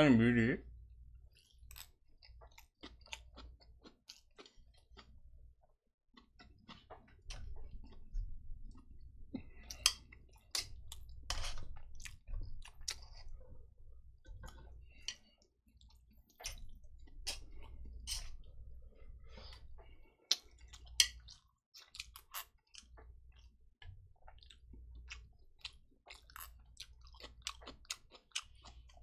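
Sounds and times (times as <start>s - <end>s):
chewing noodles with mouth clicks: 1.2s - 29.0s.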